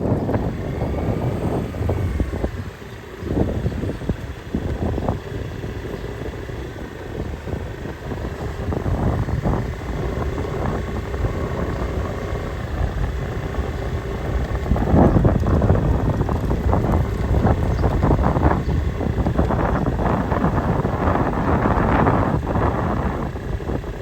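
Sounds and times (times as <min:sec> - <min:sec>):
vehicle engine rumble: 0:00.0 - 0:24.0
wind buffeting microphone: 0:00.0 - 0:24.0.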